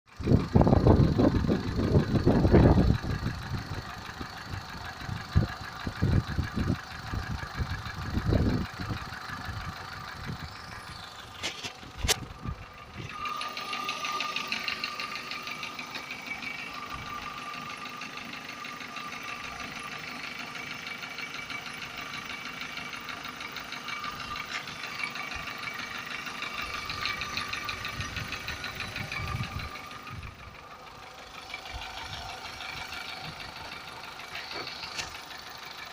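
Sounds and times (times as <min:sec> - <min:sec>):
car engine knocking: 0:00.1 - 0:35.9
sharp click: 0:11.4 - 0:12.3.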